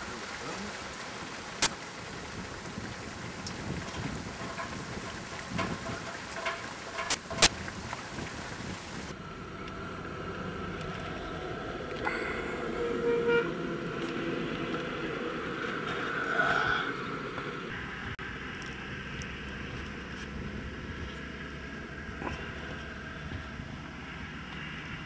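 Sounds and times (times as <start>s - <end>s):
rain hiss: 0.0s - 25.0s
distant vehicle horns tooting: 12.1s - 13.9s.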